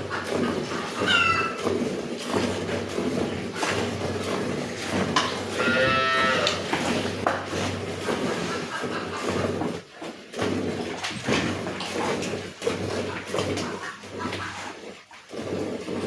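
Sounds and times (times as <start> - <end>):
cow mooing: 5.5 - 6.9.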